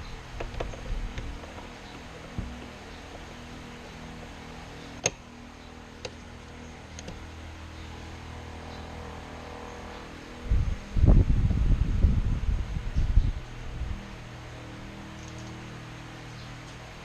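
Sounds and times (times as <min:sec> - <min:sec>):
low mechanical hum: 0:00.0 - 0:17.0
loud low rumbling: 0:07.9 - 0:15.1.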